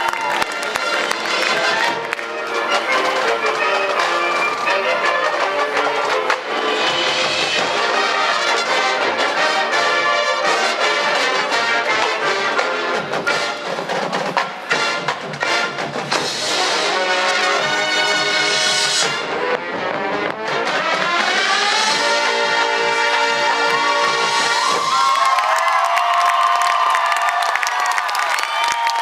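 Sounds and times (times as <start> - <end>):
drumline percussion: 0.0 - 29.0
brass sustained chords: 0.6 - 13.6, 16.4 - 24.5.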